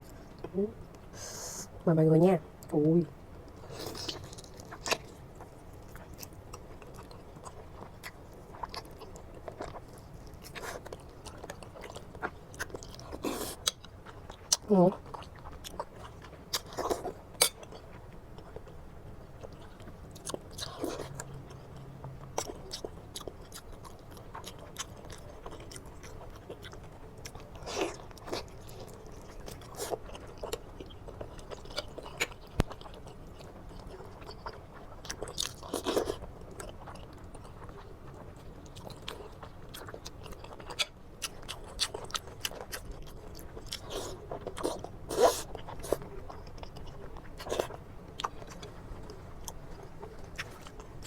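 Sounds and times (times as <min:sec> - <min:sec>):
person chewing food: 0:03.5 - 0:51.0.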